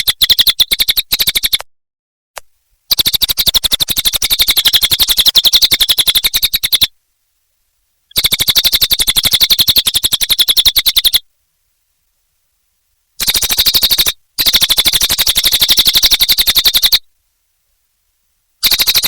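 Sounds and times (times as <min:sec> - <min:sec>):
bird singing rapid trills: 0:00.0 - 0:01.6, 0:02.9 - 0:06.9, 0:08.1 - 0:11.2, 0:13.2 - 0:17.0, 0:18.6 - 0:19.0.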